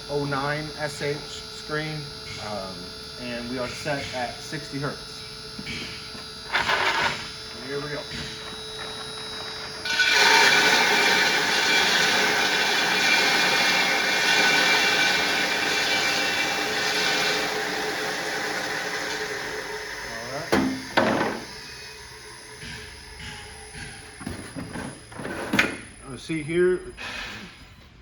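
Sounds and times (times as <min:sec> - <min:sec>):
industrial grinder whining: 0:00.0 - 0:28.0
short loud grinding bursts: 0:06.3 - 0:22.7.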